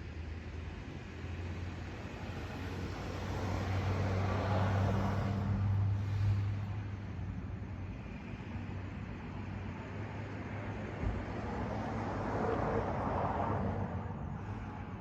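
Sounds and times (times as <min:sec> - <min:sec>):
vehicle passing by: 0:02.5 - 0:06.8.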